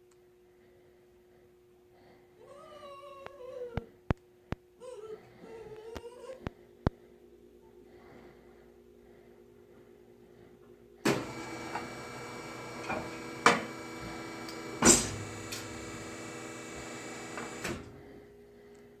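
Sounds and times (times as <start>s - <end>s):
milking machine running: 11.1s - 18.2s.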